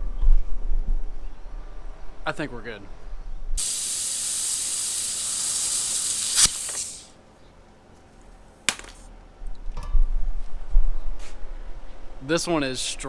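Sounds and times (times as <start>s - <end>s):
compressed air hissing: 3.6s - 7.2s.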